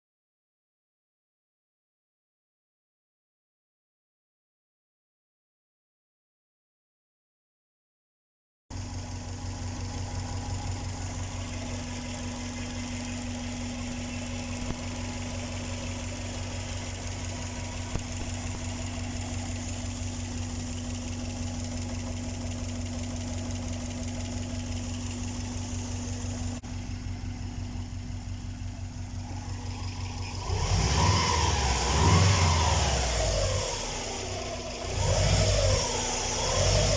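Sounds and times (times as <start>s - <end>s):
car engine idling: 8.7s - 36.9s.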